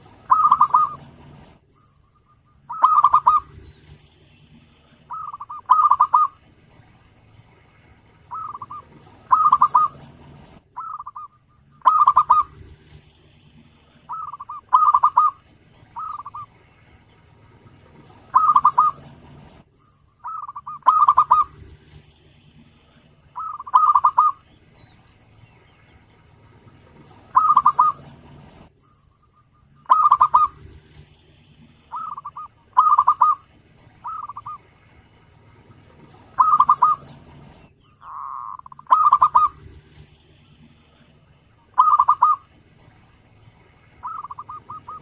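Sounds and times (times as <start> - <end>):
dove cooing: 0.0 - 4.0, 4.8 - 6.8, 8.2 - 16.7, 17.6 - 24.9, 26.2 - 34.7, 35.7 - 43.0, 43.9 - 45.0.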